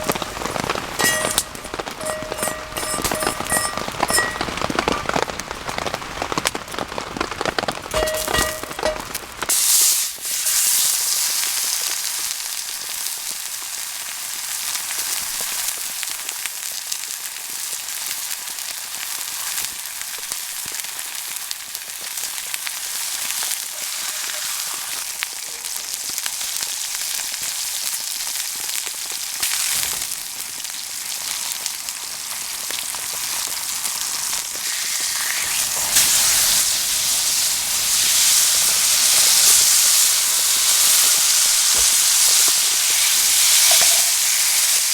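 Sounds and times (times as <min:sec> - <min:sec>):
fire popping: 0:00.0 - 0:10.4
steak sizzling over fire: 0:00.0 - 0:44.9.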